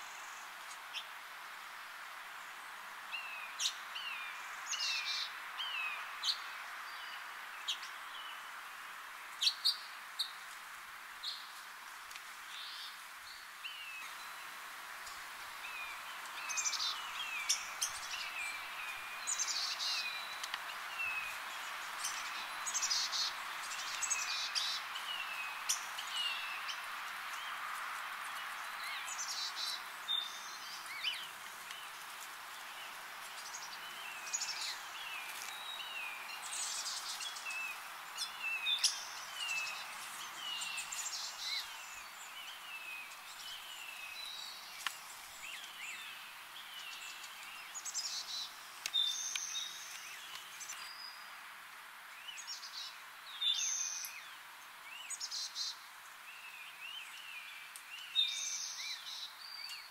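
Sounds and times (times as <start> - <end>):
songbirds chirping: 0.0 - 59.9
steady background hiss: 0.0 - 59.9.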